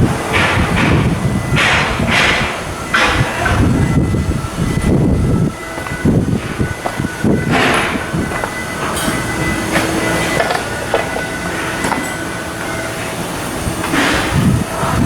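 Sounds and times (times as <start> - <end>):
mechanical rumble: 0.0 - 15.0
metallic knocks and clanks: 0.3 - 4.0, 5.8 - 12.8.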